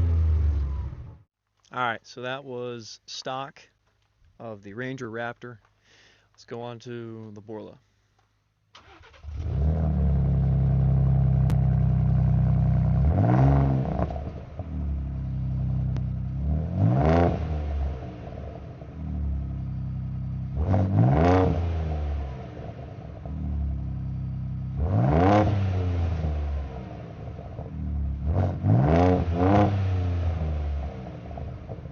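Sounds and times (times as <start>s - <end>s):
truck engine starting and revving: 0.0s - 1.3s, 8.8s - 31.9s.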